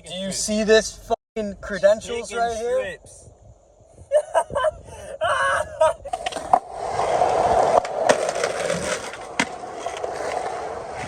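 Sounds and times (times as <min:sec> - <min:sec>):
skateboard wheels rolling on pavement: 0:06.0 - 0:11.0
skateboard wheels clacking over cracks: 0:06.1 - 0:11.0.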